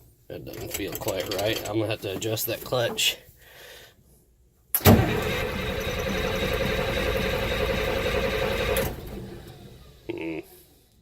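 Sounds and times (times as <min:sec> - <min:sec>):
truck engine starter cranking: 0:04.8 - 0:10.1.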